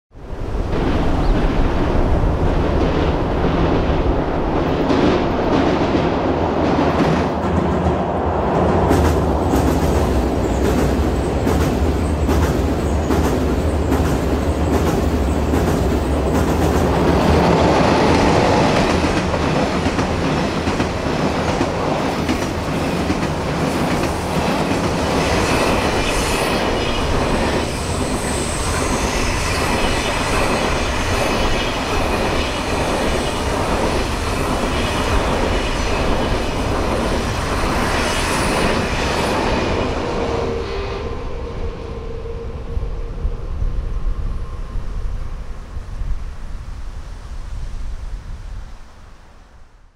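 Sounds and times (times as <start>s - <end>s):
train wheels clattering on bridge: 0.7s - 40.1s.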